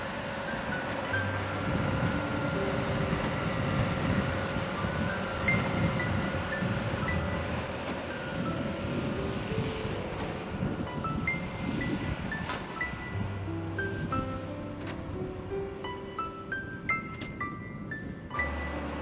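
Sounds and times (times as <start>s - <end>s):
steady low rumble: 0.0s - 18.4s
simple melody: 0.0s - 19.0s.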